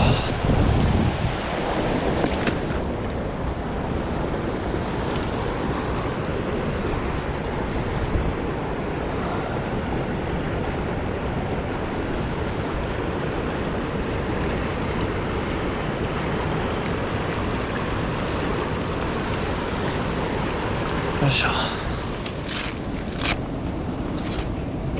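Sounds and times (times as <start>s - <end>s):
stream rushing over rocks: 0.0s - 24.9s.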